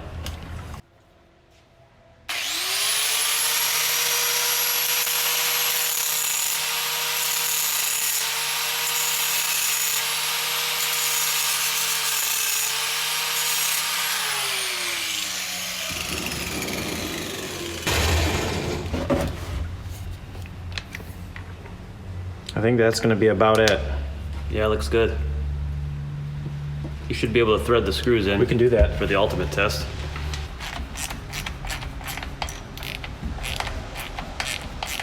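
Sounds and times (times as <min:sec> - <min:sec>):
angle grinder grinding steel: 0:02.3 - 0:19.3
rough metal scraping: 0:13.4 - 0:20.1.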